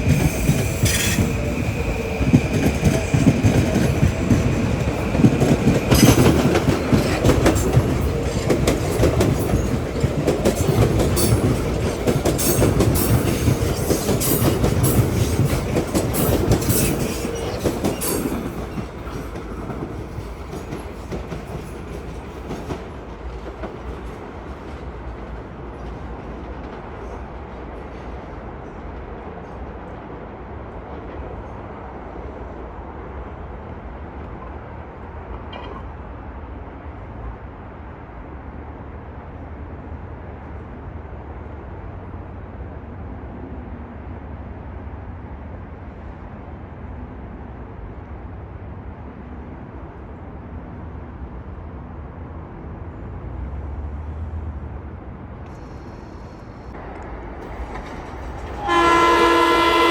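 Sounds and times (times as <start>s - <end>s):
train rumbling: 0.0s - 59.9s
loud train horn: 58.5s - 59.9s.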